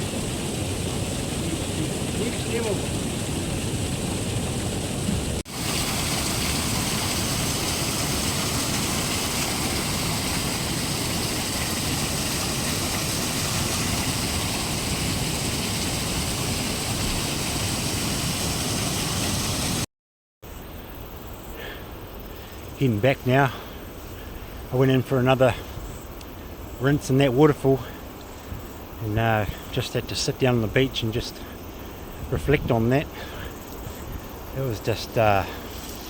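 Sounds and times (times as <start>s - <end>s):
waterfall rushing: 0.0s - 19.9s.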